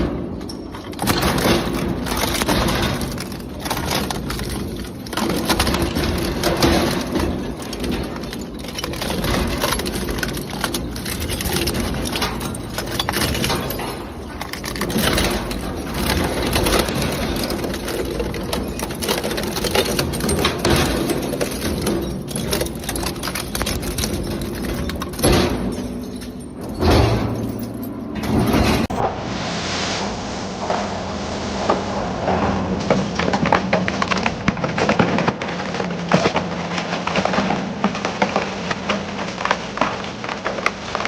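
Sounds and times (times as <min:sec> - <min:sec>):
metal cracking and crunching: 0:00.0 - 0:29.0, 0:32.8 - 0:41.0
shredder grinding scrap metal: 0:00.3 - 0:28.9.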